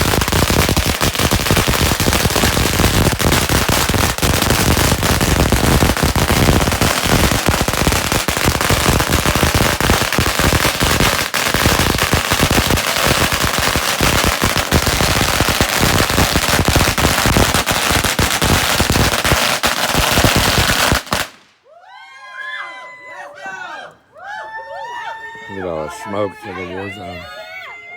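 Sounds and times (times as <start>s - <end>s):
firecrackers popping rapidly: 0.0s - 21.6s.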